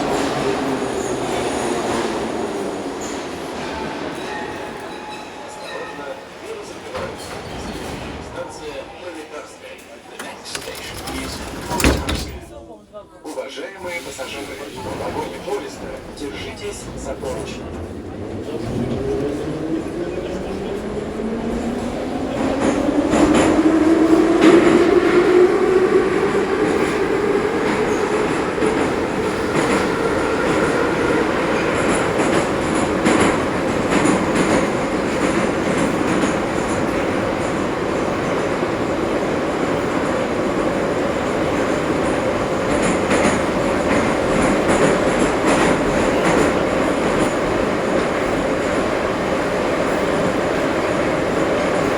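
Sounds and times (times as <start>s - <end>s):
rail clicks: 10.0s - 12.8s, 13.8s - 51.9s
train wheels rumbling: 10.2s - 13.0s, 13.8s - 51.9s.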